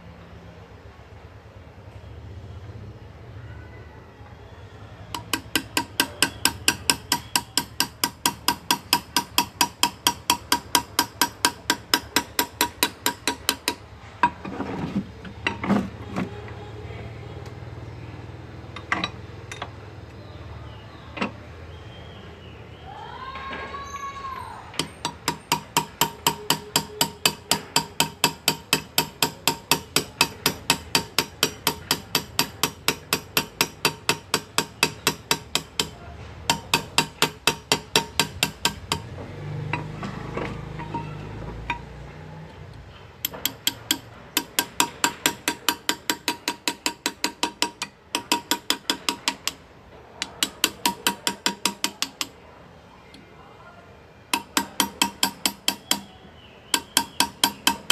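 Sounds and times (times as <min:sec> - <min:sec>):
hammer tapping chisel into metal: 0:05.1 - 0:14.5, 0:24.7 - 0:41.9, 0:43.2 - 0:49.6, 0:50.2 - 0:52.4, 0:54.3 - 0:57.9.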